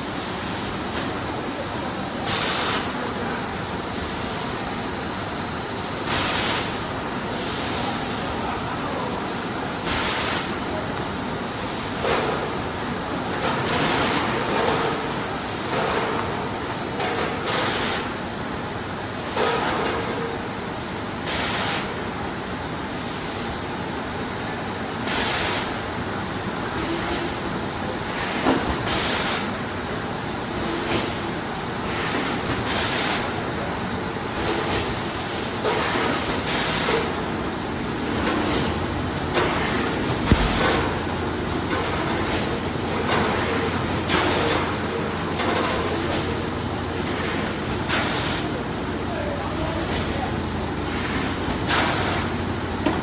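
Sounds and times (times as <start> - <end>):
machine running: 35.6 - 52.8.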